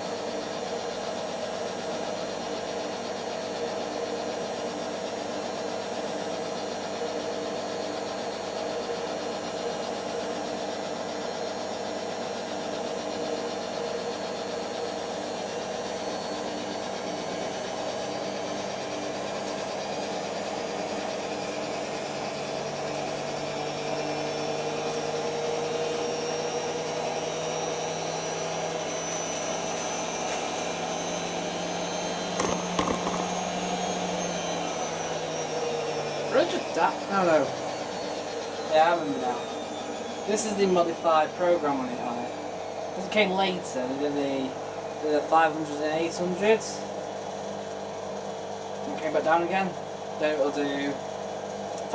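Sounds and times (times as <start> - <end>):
washing machine spinning: 26.4 - 34.3
brief knocks: 32.4 - 33.5.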